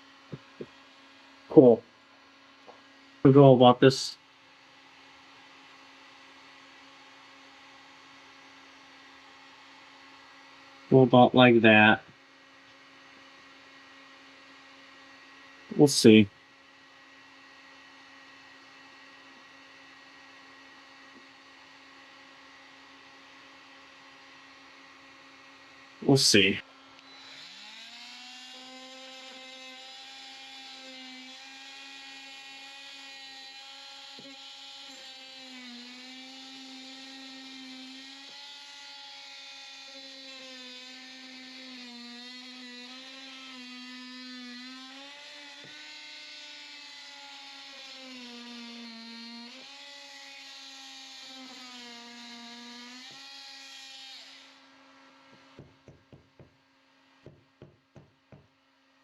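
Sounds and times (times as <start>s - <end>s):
handheld power tool cutting wall: 26.9s - 56.6s, 57.2s - 58.6s.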